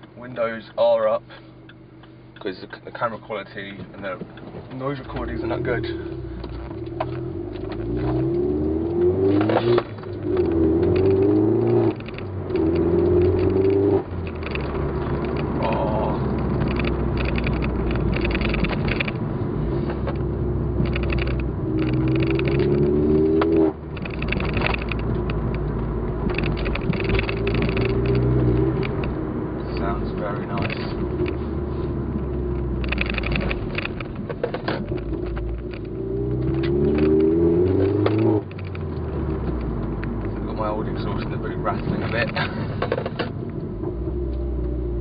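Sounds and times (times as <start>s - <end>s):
car engine accelerating hard: 4.8s - 45.0s.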